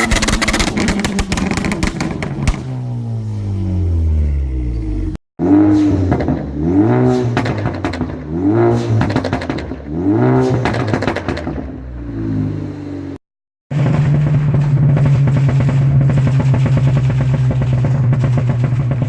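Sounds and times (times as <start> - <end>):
exhaust pops and crackles: 0.0 - 3.2, 6.1 - 11.8, 13.7 - 19.0
car engine revving: 0.0 - 19.0.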